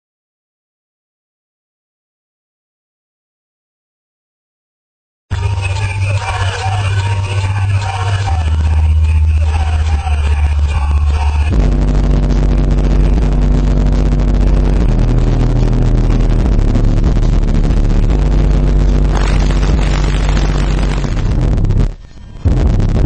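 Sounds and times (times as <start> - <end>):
rap song: 5.3 - 21.4
subwoofer playing deep bass notes: 5.3 - 23.0.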